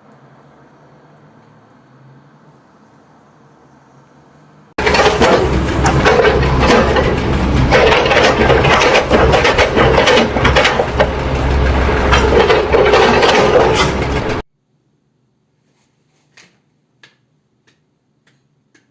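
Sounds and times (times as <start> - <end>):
low engine drone: 4.8 - 14.4.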